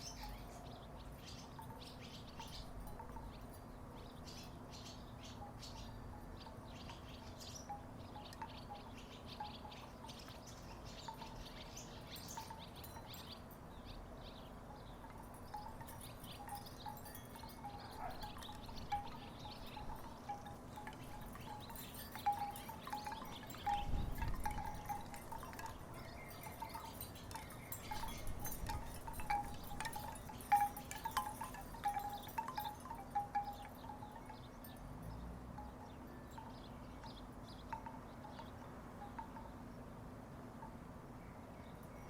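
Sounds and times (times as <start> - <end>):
wooden wind chimes knocking: 1.4 - 3.7, 14.9 - 39.6.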